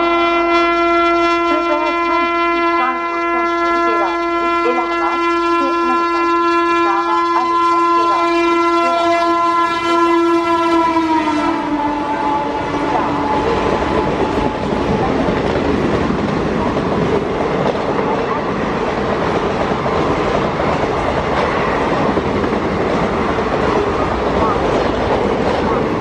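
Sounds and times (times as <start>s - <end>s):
train horn blowing: 0.0s - 15.1s
train passing by: 0.0s - 26.0s.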